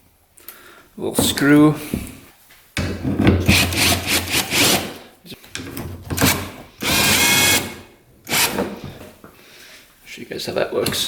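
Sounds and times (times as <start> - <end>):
hand tools scraping: 2.9 - 9.2.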